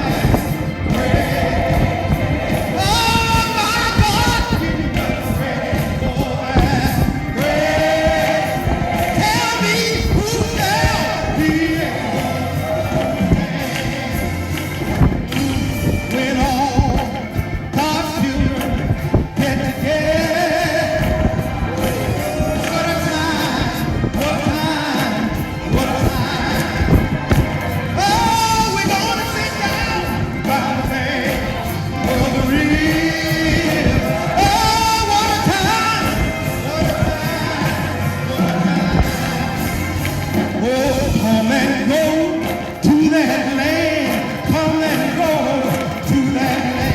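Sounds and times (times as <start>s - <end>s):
instrumental accompaniment: 0.0s - 46.9s
singing a hymn: 0.0s - 46.9s.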